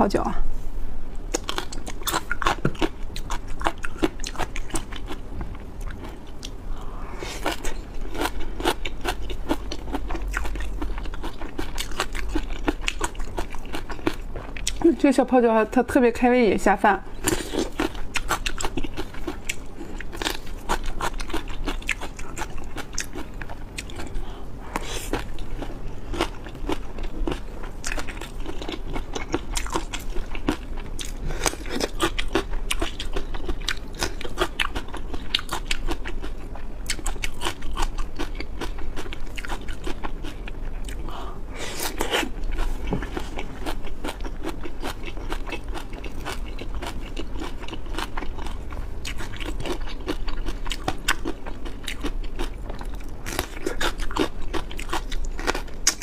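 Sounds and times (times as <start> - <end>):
chewing and crunching crisp food: 1.2 - 15.3, 17.1 - 56.0.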